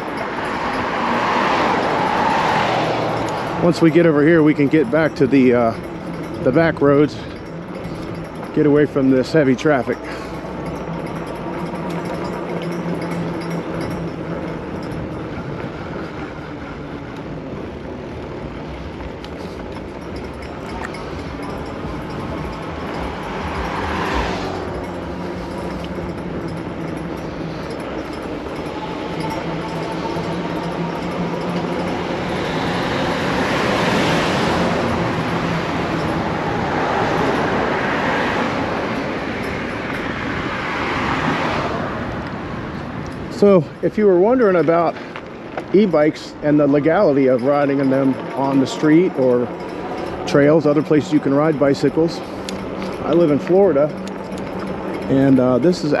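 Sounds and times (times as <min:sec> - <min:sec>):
wind noise: 0:00.0 - 0:43.8
heavy road traffic: 0:00.0 - 0:56.0.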